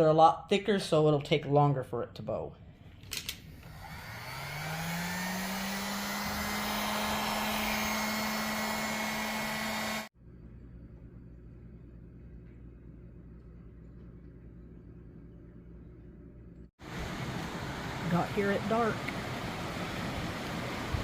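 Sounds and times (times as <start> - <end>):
electric blower motor humming: 3.5 - 10.1
faint low hum: 10.2 - 16.7.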